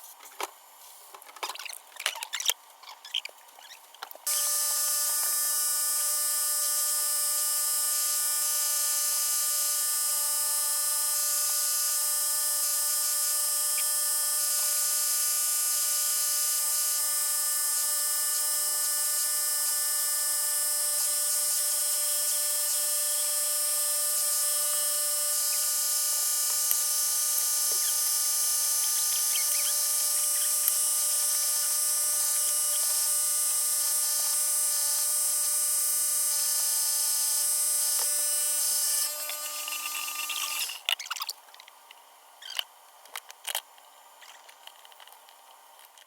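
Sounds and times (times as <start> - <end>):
electric motor whining: 4.3 - 40.8.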